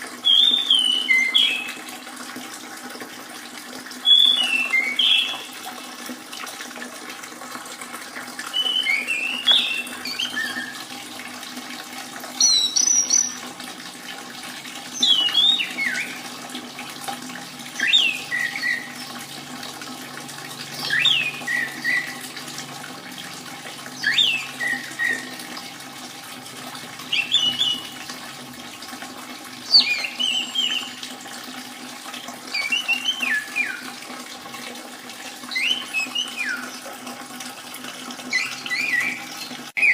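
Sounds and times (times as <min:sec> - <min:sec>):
trickle of running water: 0:00.0 - 0:39.9
thrush whistling song: 0:00.2 - 0:01.8, 0:04.0 - 0:05.5, 0:08.5 - 0:10.9, 0:12.4 - 0:13.4, 0:14.9 - 0:16.3, 0:17.7 - 0:19.1, 0:20.7 - 0:22.3, 0:23.9 - 0:25.5, 0:27.1 - 0:28.1, 0:29.6 - 0:31.0, 0:32.5 - 0:33.9, 0:35.5 - 0:36.8, 0:38.3 - 0:39.9.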